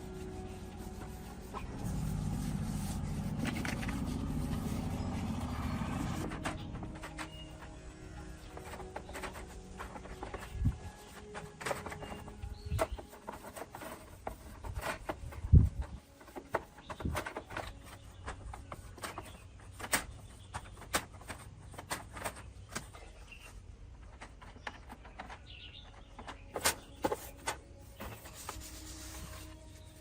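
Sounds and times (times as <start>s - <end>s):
tools and parts clicking and knocking: 6.2s - 23.2s, 23.9s - 28.3s.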